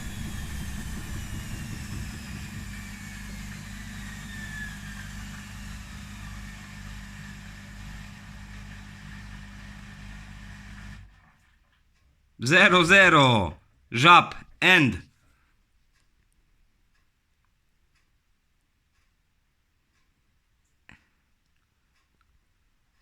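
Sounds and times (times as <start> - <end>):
washing machine drum spinning down: 0.0 - 11.0.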